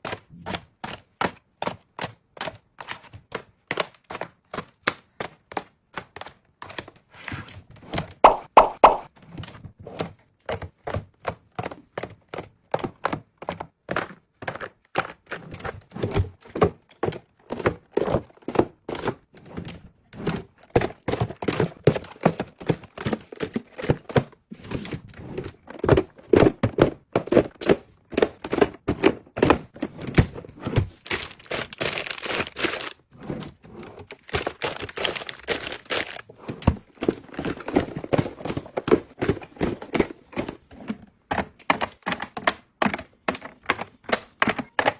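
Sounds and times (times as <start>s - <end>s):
handling taps and crinkles: 20.5s - 33.1s, 33.9s - 44.9s.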